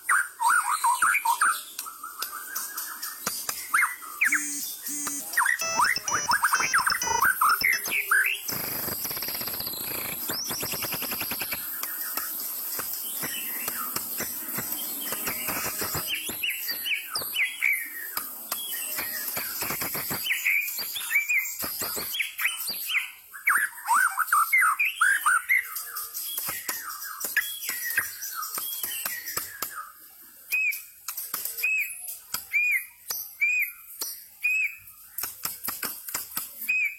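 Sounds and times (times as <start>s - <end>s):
songbird singing whistles: 0.1s - 35.0s, 36.6s - 36.9s
rapid scratchy bird chatter: 1.7s - 23.0s, 25.3s - 29.7s, 35.2s - 36.6s.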